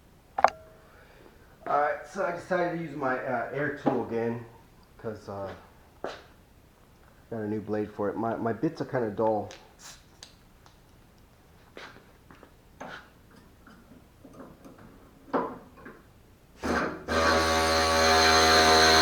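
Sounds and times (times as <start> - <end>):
tools knocking and handling: 0.4 - 0.8, 12.8 - 16.1
pneumatic cutoff tool running: 16.6 - 19.0.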